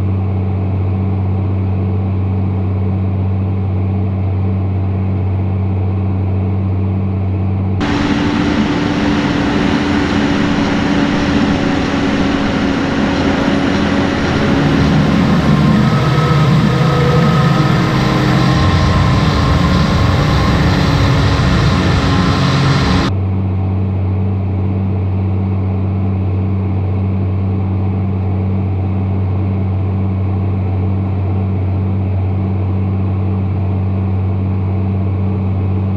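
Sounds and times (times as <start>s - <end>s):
tractor engine hum: 7.3s - 23.7s
broad rush of noise: 7.8s - 23.2s.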